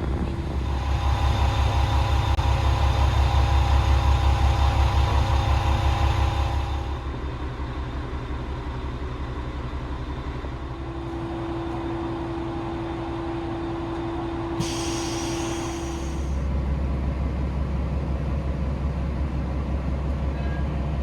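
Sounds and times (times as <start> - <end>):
diesel engine idling: 0.0 - 21.0
hiss: 14.6 - 16.4.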